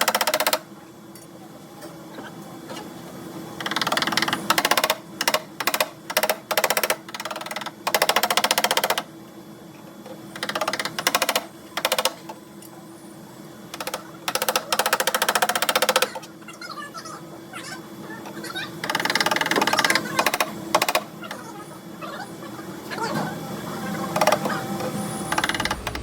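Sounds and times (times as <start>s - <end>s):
power tool hammering sheet metal: 25.3s - 26.0s.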